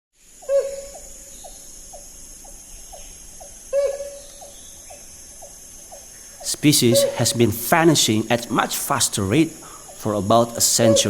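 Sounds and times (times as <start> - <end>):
steady high hiss: 0.2 - 11.0
hornbill hooting: 0.3 - 11.0
short quieter bird notes: 6.4 - 7.8.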